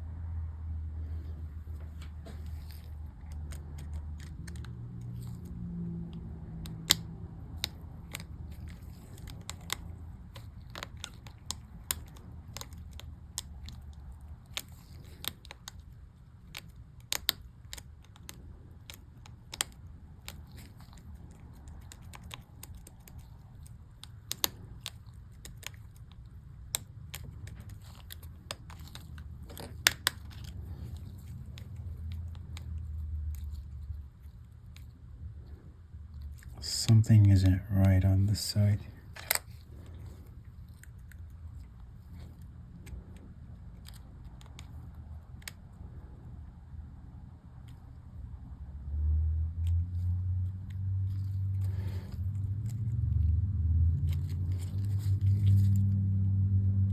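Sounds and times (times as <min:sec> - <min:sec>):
low steady hum: 0:00.0 - 0:56.9
plastic keycaps clicking: 0:02.0 - 0:35.5, 0:36.4 - 0:45.8.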